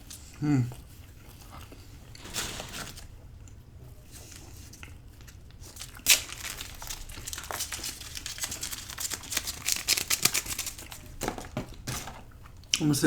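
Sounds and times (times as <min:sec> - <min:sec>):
crinkling and crackling: 0:01.0 - 0:13.0.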